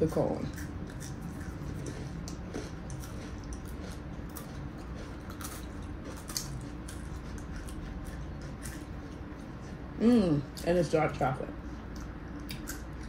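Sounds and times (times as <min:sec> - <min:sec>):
steady low hum: 0:00.0 - 0:13.0
crunching ice cream cone: 0:00.4 - 0:09.6.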